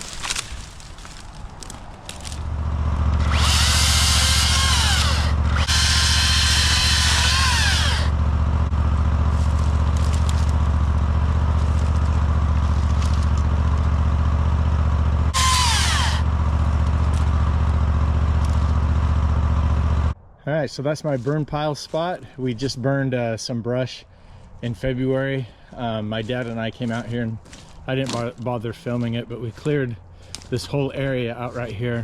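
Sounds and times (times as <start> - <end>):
vehicle engine running: 0.0 - 20.2
high squealing sliding down: 3.2 - 8.2, 15.3 - 16.4.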